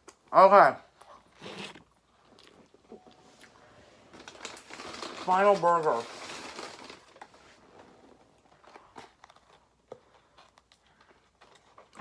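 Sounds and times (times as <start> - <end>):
burger wrapper crinkling: 4.1 - 7.4.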